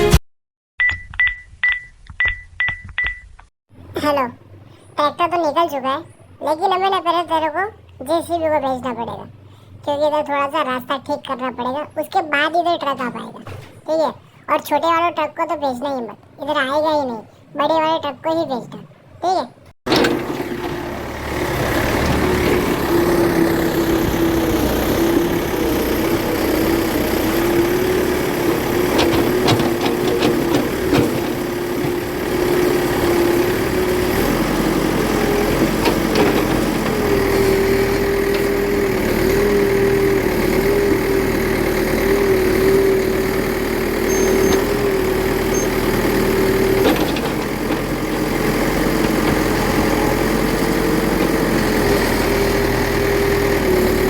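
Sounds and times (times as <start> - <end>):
toy digger motor hum: 19.9 - 54.0.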